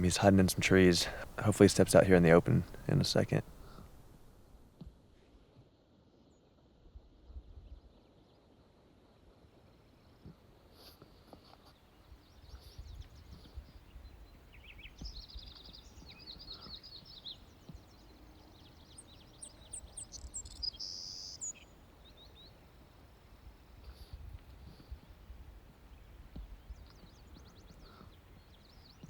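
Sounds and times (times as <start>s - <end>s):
songbirds chirping and trilling: 0.0s - 4.2s, 11.9s - 29.0s
wind rumble on microphone: 7.0s - 7.9s, 12.4s - 16.1s.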